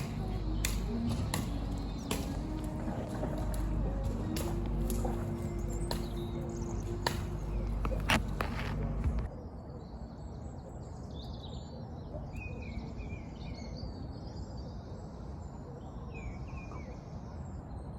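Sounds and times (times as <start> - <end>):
low background rumble: 0.0 - 9.3
birds chirping and trilling: 0.0 - 17.9.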